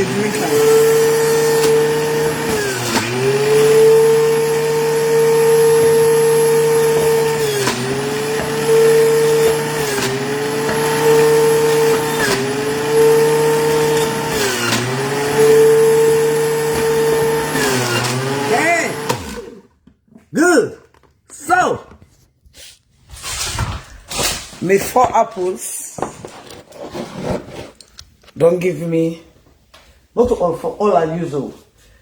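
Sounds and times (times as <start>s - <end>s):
electric juicer motor whining: 0.0s - 19.9s.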